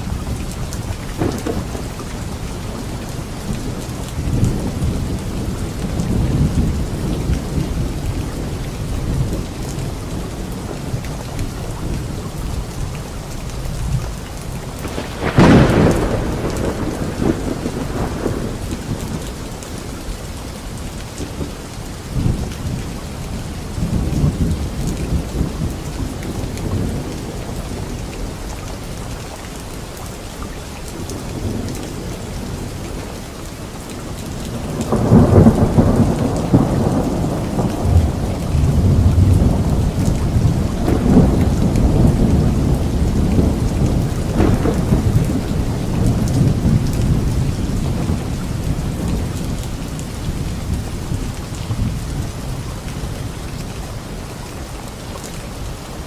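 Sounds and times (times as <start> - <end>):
loud thunderclap rolling: 0.0 - 11.1, 14.8 - 19.8, 34.4 - 52.9
low thunder rumbling: 0.0 - 28.9, 31.0 - 53.7
steady rain falling: 0.0 - 56.0.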